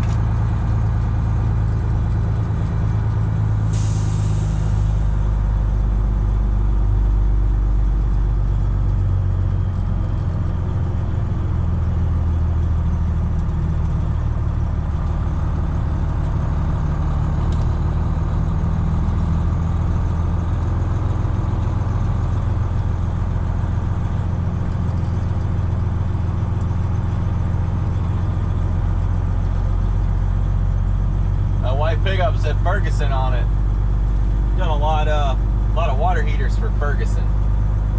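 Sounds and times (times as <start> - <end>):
truck diesel engine droning: 0.0 - 37.9.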